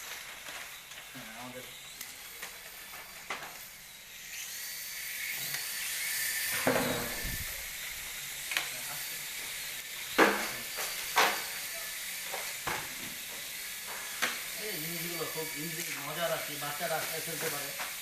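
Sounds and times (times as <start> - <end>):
steady high hiss: 14.2 - 17.8.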